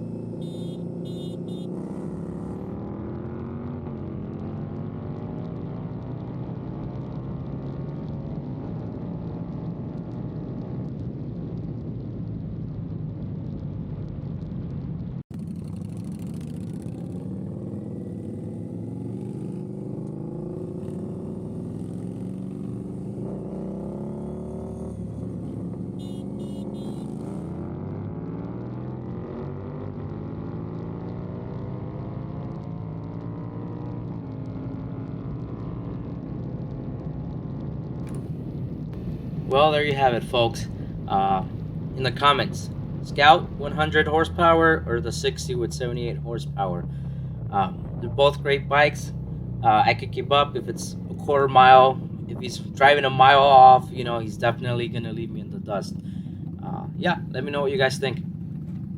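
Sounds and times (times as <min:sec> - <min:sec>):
motorcycle engines accelerating: 0:15.3 - 0:36.5, 0:38.1 - 0:58.9.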